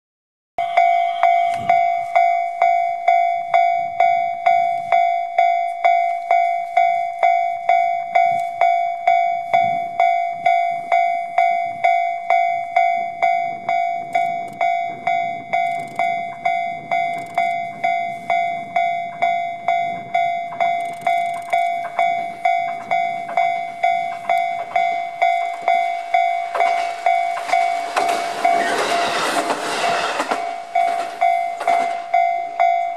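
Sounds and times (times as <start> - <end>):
level crossing bell ringing: 0.6 - 32.9
diesel railcar rumble passing: 12.7 - 32.9.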